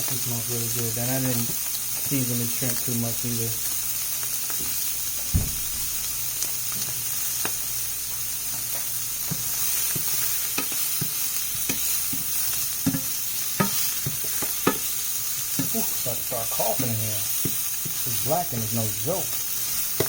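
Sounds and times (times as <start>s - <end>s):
shrimp sizzling in oil: 0.0s - 20.0s
utensil knocking and scraping pan: 12.8s - 14.8s.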